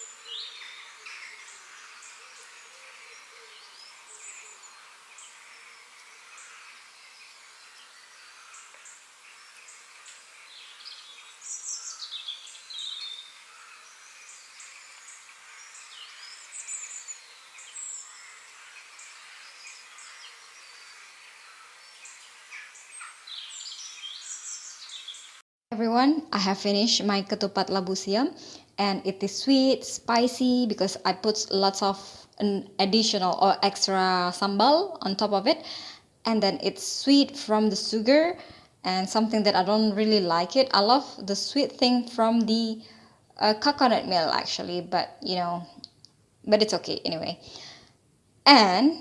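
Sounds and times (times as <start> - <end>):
birds chirping: 0.0 - 25.4
outdoor background hiss: 0.0 - 49.0.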